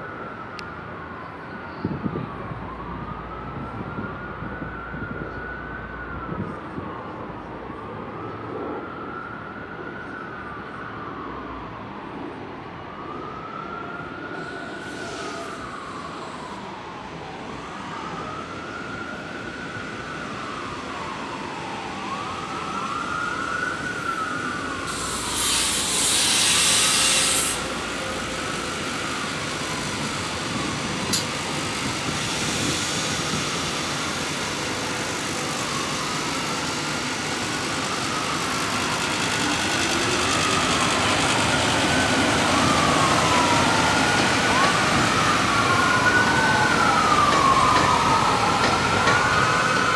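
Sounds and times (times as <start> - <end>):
emergency vehicle siren wailing: 0.0 - 49.9
loud hiss: 24.9 - 42.8.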